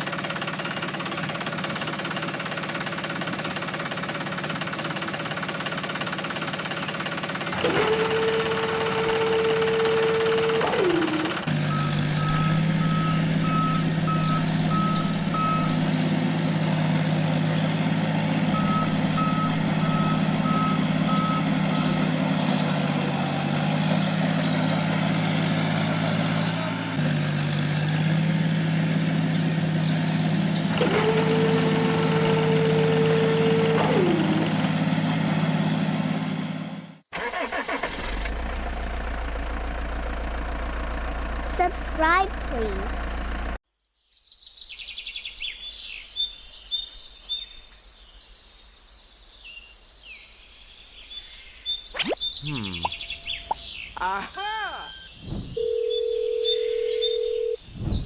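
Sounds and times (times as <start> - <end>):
tractor engine running: 0.0 - 43.6
reversing alarm beeps: 11.7 - 15.9, 18.5 - 22.1.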